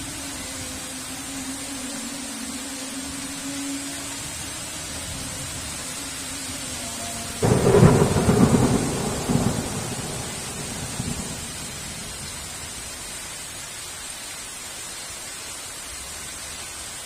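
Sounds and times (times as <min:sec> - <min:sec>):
heavy rain: 0:00.0 - 0:17.0
thunder rumbling: 0:07.4 - 0:13.0.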